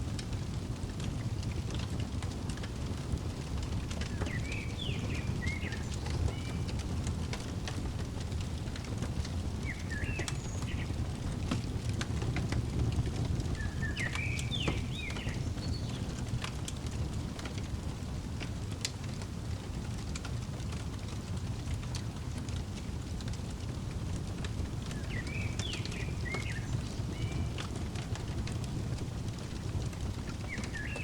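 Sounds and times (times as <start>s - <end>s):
fireplace crackling: 0.0s - 31.0s
bird chirps: 4.1s - 6.6s, 9.6s - 11.0s, 13.6s - 16.0s, 25.0s - 27.7s, 30.4s - 31.0s.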